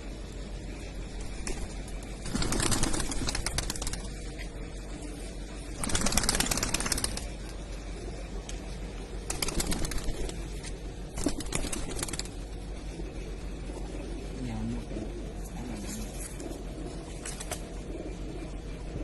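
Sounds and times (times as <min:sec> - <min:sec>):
low bird coo: 0:00.0 - 0:19.0
birds flapping wings: 0:01.0 - 0:13.2, 0:15.4 - 0:18.2.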